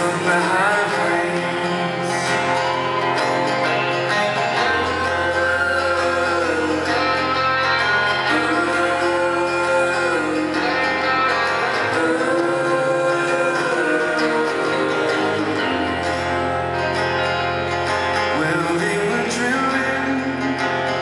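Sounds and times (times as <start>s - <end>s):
person singing: 0.0s - 17.4s, 18.0s - 21.0s
strummed acoustic guitar: 0.0s - 21.0s.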